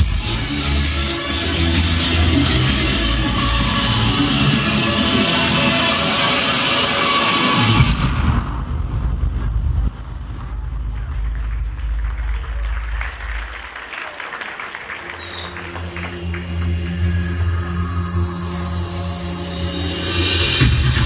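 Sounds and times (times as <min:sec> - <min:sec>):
low rumble: 0:07.7 - 0:14.0
audience murmuring: 0:10.2 - 0:17.9
audience clapping: 0:10.4 - 0:17.9.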